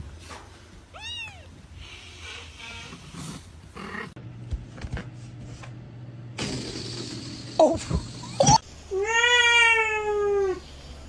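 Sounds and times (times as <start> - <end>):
cat meowing: 0.9 - 3.1.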